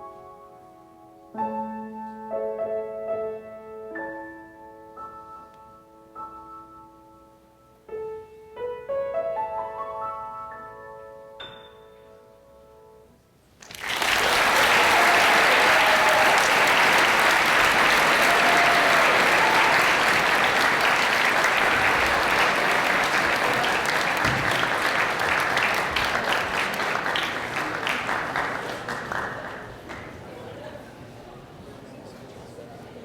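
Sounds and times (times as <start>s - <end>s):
piano notes: 0.0s - 13.4s, 16.8s - 28.6s
audience applauding: 13.6s - 30.7s.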